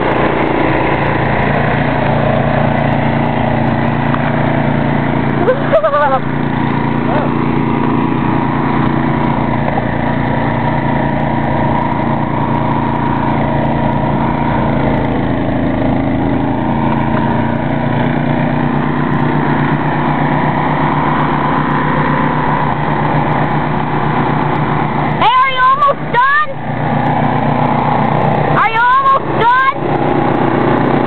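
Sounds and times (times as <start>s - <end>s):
snow thrower engine running: 0.0s - 31.0s.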